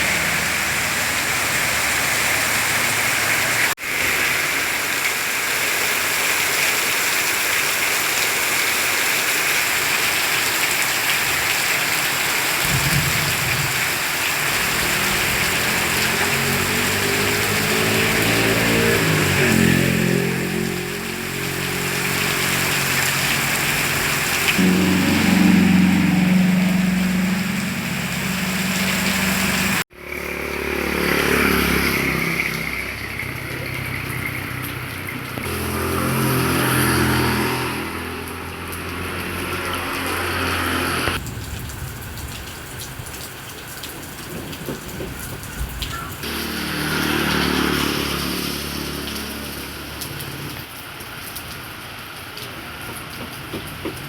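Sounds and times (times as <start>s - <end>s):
passing vehicle engines: 0.0s - 3.8s, 14.3s - 41.2s, 46.2s - 50.6s
heavy rain falling: 0.0s - 54.0s.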